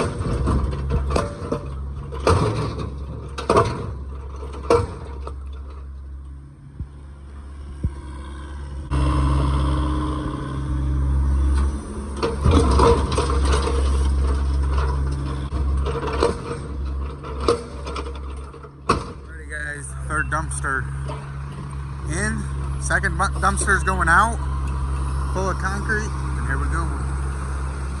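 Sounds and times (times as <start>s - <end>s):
broken concrete scraping and knocking: 0.0s - 6.0s, 11.6s - 19.3s
diesel engine running: 0.0s - 28.0s.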